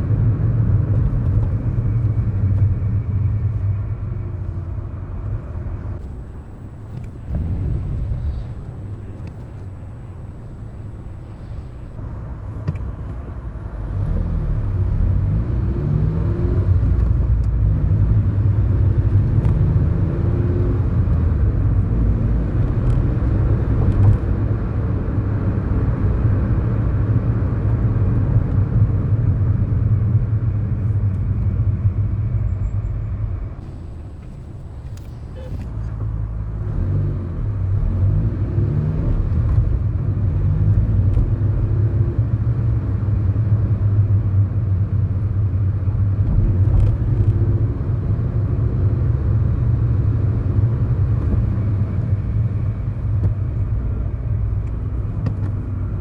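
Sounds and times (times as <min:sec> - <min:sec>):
road noise: 0:00.0 - 0:26.0, 0:30.5 - 0:56.0
car engine running: 0:06.0 - 0:12.1, 0:33.6 - 0:36.7.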